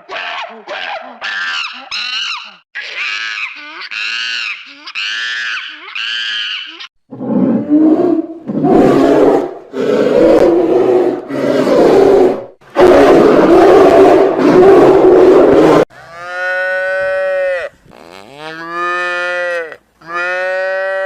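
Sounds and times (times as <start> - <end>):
high-pitched animal call: 0.2 - 10.2
deep animal roaring: 7.1 - 15.9.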